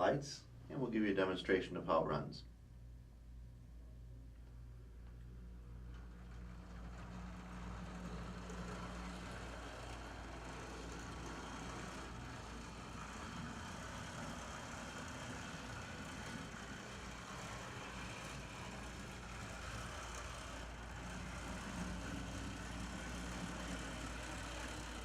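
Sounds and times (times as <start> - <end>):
model train motor humming: 5.5 - 25.0.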